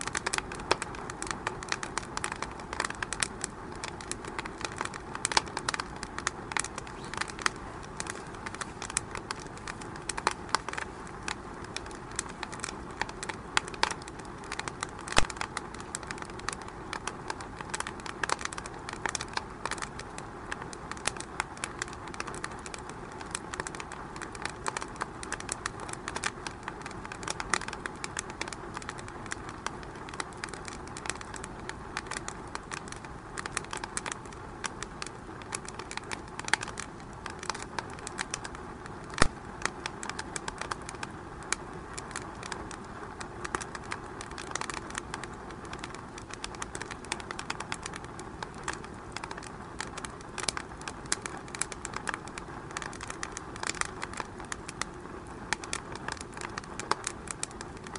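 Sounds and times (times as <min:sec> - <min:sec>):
wood fire crackling and popping: 0:00.0 - 0:57.9.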